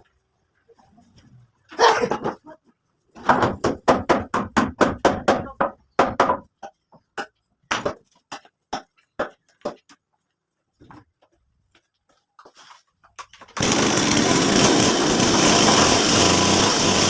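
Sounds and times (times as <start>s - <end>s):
hammering on wood: 3.2s - 6.5s.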